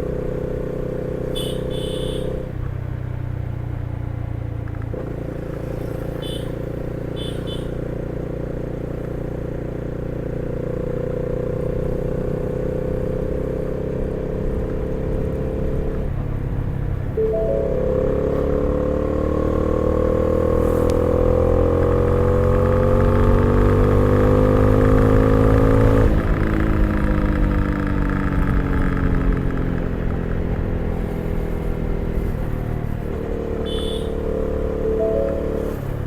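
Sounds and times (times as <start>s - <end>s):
motorcycle engine accelerating: 4.3s - 36.0s.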